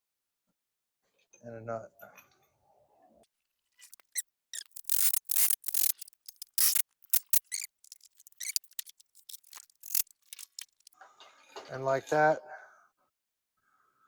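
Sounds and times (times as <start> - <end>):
ratchet wrench clicking: 3.8 - 10.9.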